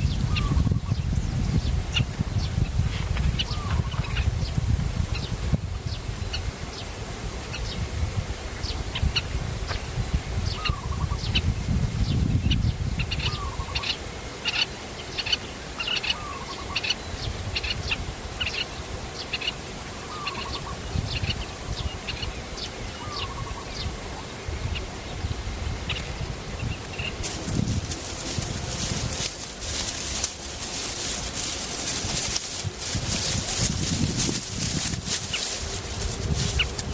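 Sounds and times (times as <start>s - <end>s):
steady low rumble: 27.2s - 36.9s.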